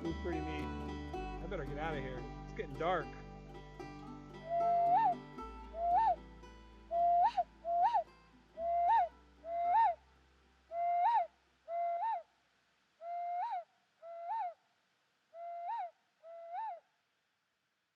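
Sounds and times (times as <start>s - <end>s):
clay bird-call whistle hooting: 5.8s - 6.2s, 6.9s - 10.0s, 10.7s - 12.2s, 13.0s - 14.6s, 15.4s - 16.8s.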